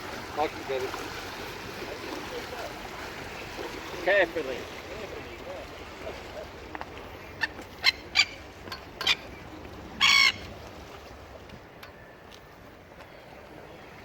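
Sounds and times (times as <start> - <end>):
seagull squawking: 7.2 - 10.5.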